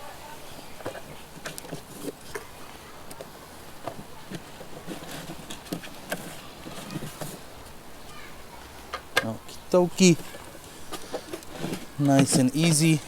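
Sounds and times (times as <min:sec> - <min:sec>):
faint outdoor background: 0:00.0 - 0:13.0
beehive boxes knocking: 0:10.0 - 0:13.0.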